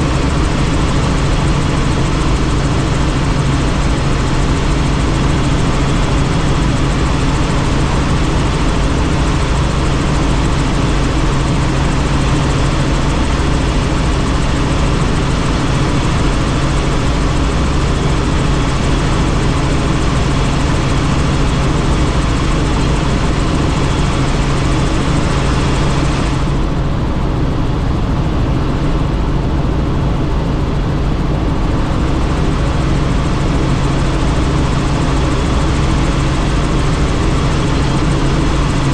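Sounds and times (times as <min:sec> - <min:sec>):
helicopter rotor and engine noise: 0:00.0 - 0:38.9.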